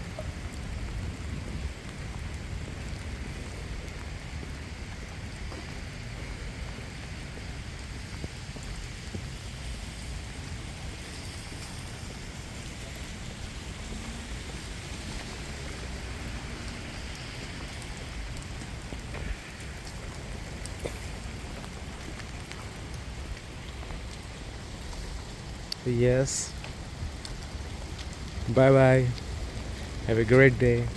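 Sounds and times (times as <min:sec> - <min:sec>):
steady rain falling: 0:00.0 - 0:30.9.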